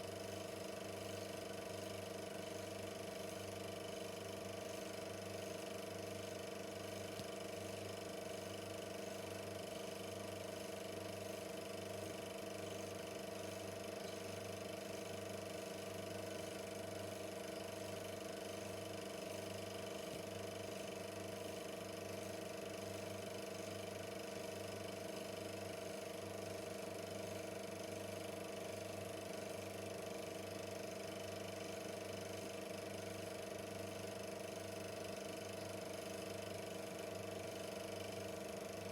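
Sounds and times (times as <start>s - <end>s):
film projector motor hum: 0.0s - 38.9s.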